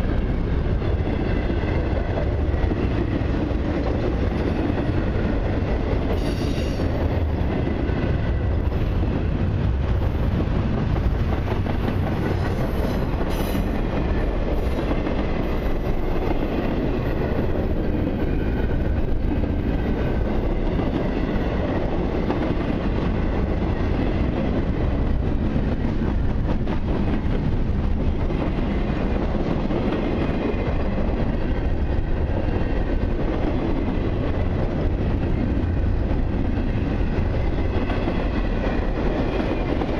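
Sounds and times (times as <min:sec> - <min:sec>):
freight train rumble: 0:00.0 - 0:39.9
faint high wheel squeal: 0:06.1 - 0:06.9.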